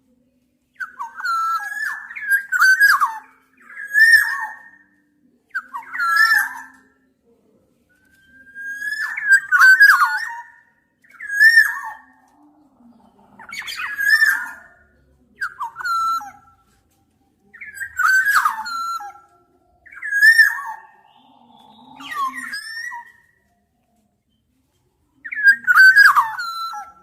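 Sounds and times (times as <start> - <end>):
bird singing fluty whistles: 0.8 - 4.9, 8.0 - 12.2, 13.4 - 14.8, 15.4 - 16.7, 17.6 - 23.5, 25.2 - 27.0.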